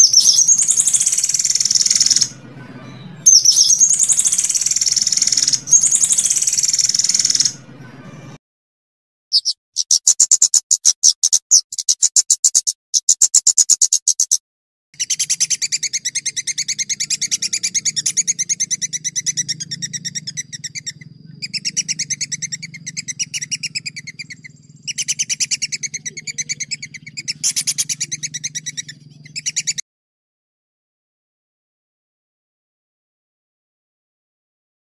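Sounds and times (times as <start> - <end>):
songbird fast rolling trill: 0.0 - 8.4, 9.3 - 14.3, 15.0 - 29.8
steady low hum: 15.6 - 29.5.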